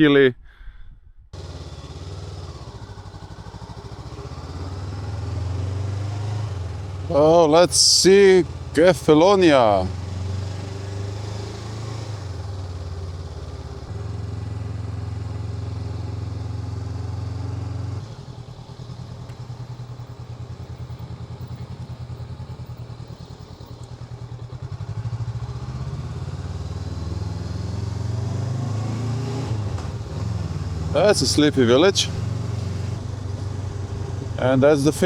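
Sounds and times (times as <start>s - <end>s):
motorcycle engine running: 1.4s - 35.0s.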